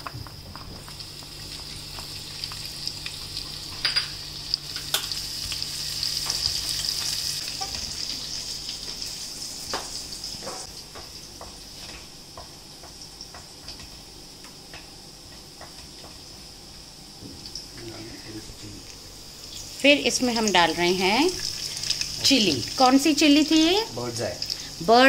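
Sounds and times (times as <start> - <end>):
garlic sizzling in hot oil: 0.0 - 14.4, 15.0 - 25.0.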